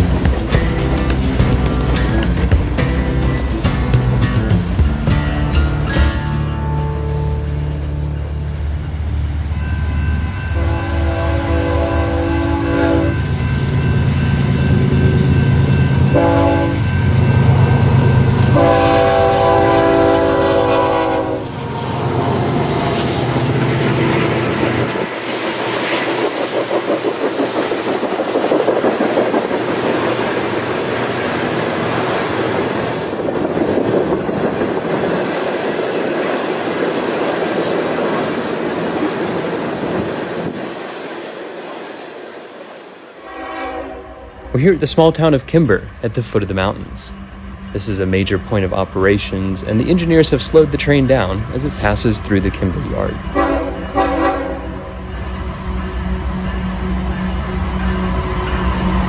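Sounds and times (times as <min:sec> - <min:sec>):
diesel locomotive horn blasts: 0:09.6 - 0:13.4, 0:16.0 - 0:17.0, 0:17.6 - 0:21.6, 0:43.2 - 0:44.4, 0:53.3 - 0:55.1
train wheels clacking over rail joints: 0:25.0 - 0:30.6.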